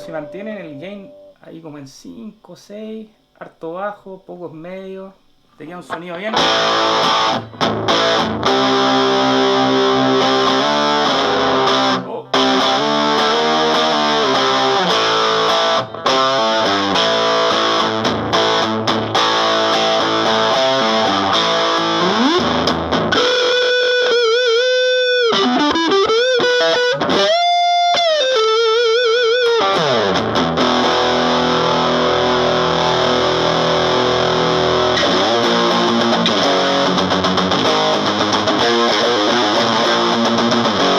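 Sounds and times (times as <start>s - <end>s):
distorted electric guitar: 0.0s - 1.5s, 5.7s - 40.9s.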